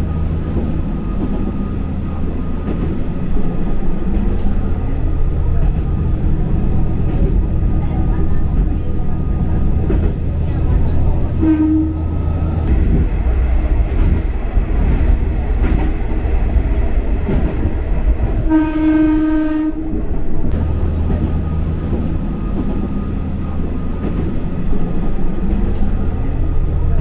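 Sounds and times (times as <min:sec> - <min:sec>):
diesel railcar rumbling: 0:00.0 - 0:27.0
train horn: 0:11.3 - 0:12.2, 0:18.4 - 0:20.0.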